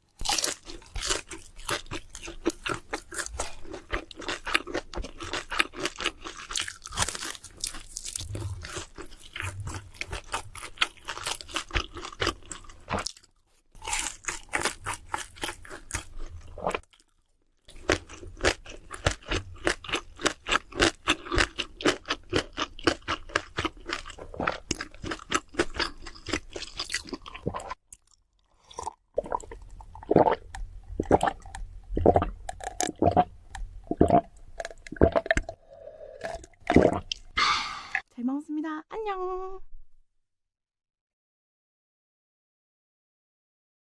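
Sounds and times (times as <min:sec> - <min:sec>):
crunching crispy food: 0:00.0 - 0:31.7.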